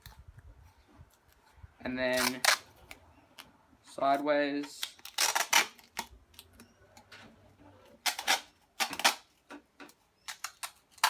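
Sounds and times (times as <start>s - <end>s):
duct tape crackling: 0.0s - 3.6s, 4.6s - 7.2s.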